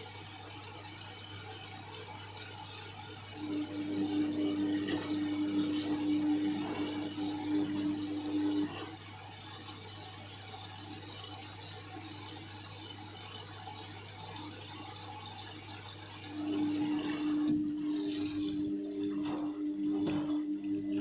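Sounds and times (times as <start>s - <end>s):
washing machine motor humming: 0.0s - 21.0s
water sloshing in drum: 16.4s - 21.0s.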